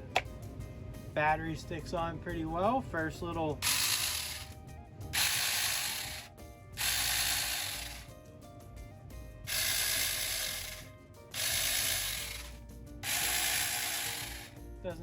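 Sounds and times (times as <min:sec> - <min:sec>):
chainsaw motor whirring: 0:03.6 - 0:04.5, 0:05.2 - 0:08.1, 0:09.5 - 0:14.6.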